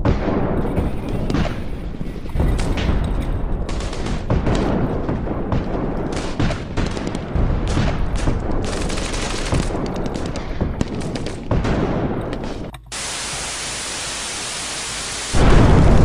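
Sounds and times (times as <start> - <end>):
airsoft guns firing bursts: 3.6 - 13.6.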